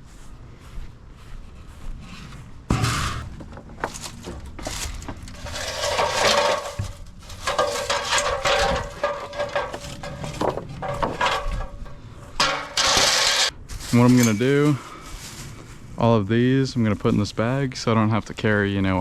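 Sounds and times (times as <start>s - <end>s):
metal junk clattering and scraping: 2.7s - 15.5s.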